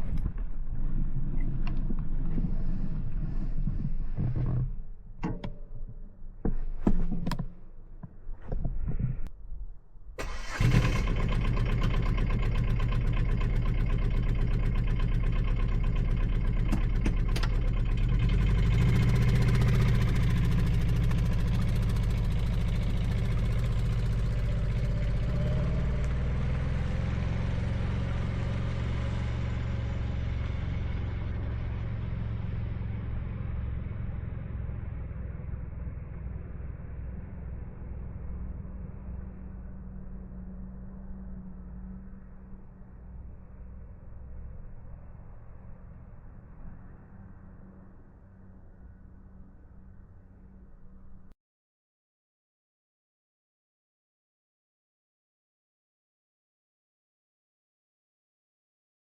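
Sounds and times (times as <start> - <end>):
small diesel engine running: 10.2 - 41.8.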